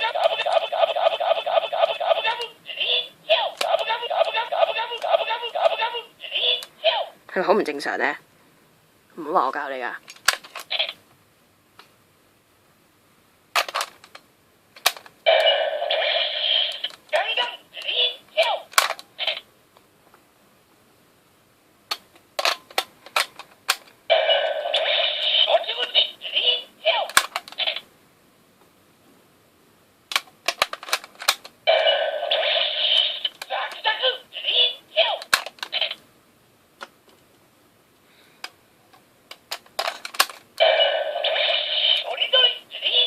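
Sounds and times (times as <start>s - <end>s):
toy electronic sound effect: 0.0s - 6.7s, 15.3s - 17.0s, 24.1s - 26.7s, 31.7s - 36.0s, 40.6s - 43.0s
toy gun plastic clicks: 10.1s - 11.0s, 13.6s - 14.2s, 14.8s - 15.1s, 18.7s - 19.4s, 21.9s - 23.9s, 27.1s - 27.8s, 30.1s - 31.5s, 35.2s - 36.0s, 39.3s - 40.4s.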